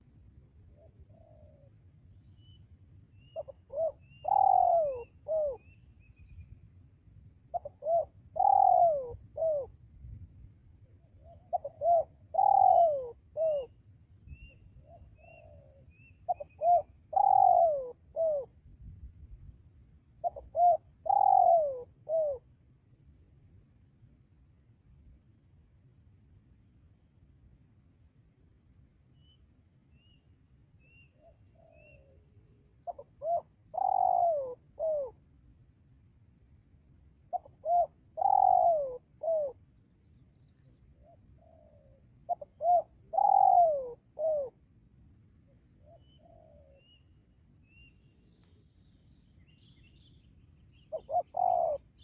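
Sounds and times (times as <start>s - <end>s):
dove cooing: 0.8s - 1.8s, 3.3s - 5.8s, 7.5s - 9.7s, 11.2s - 13.7s, 14.8s - 18.6s, 20.2s - 22.4s, 32.8s - 35.2s, 37.3s - 39.6s, 41.0s - 44.6s, 45.8s - 47.0s, 50.8s - 52.0s
small bird chirps: 3.2s - 6.6s, 37.4s - 39.6s, 40.3s - 44.5s, 45.8s - 52.0s.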